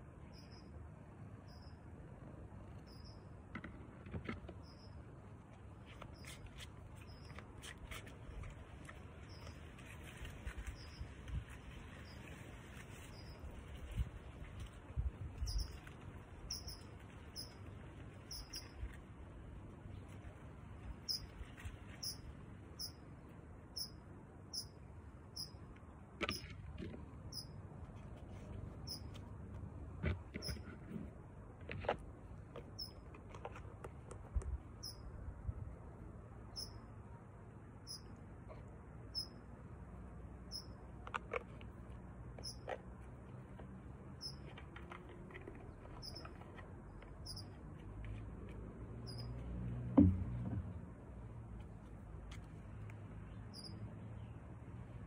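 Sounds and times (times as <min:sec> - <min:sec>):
low steady background rumble: 0:00.0 - 0:55.0
dull thump: 0:49.8 - 0:50.8.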